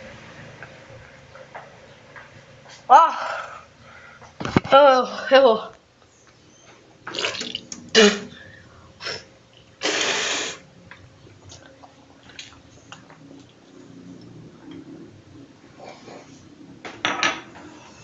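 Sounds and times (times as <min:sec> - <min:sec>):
hard blowing burst: 0:09.8 - 0:10.6.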